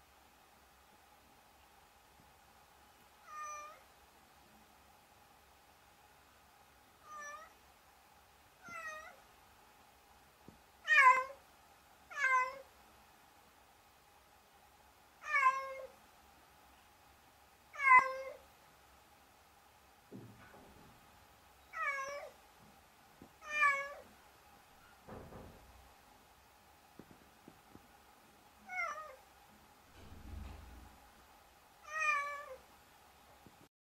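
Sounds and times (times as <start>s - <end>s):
faint steady hum: 0.0s - 33.7s
cat meowing: 3.2s - 3.8s, 7.0s - 7.6s, 8.6s - 9.2s, 10.8s - 11.4s, 12.1s - 12.7s, 15.2s - 15.9s, 17.8s - 18.4s, 21.7s - 22.4s, 23.4s - 24.1s, 28.7s - 29.2s, 31.8s - 32.6s
soft low rumble: 29.9s - 31.3s.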